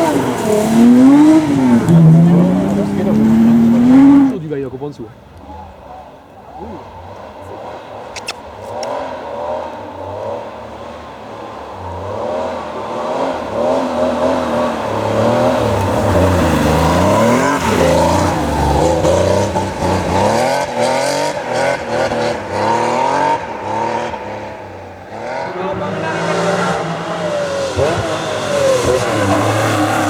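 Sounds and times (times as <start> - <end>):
engine revs with gear changes: 0.0 - 30.0
racing car engines at speed: 0.0 - 30.0.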